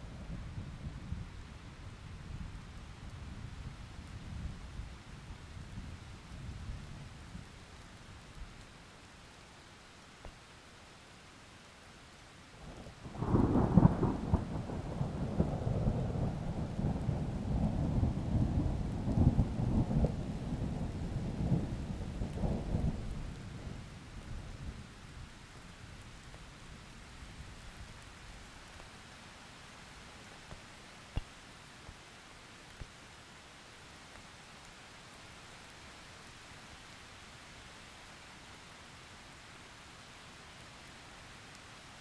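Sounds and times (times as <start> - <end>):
steady rain: 0.0 - 42.0
thunder cracking and rumbling: 13.2 - 23.8.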